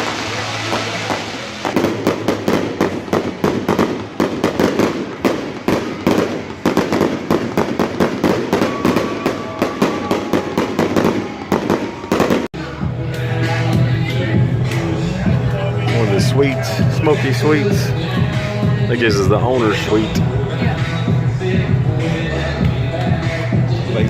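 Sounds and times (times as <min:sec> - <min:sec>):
fireworks bangs and crackling: 0:00.0 - 0:12.5.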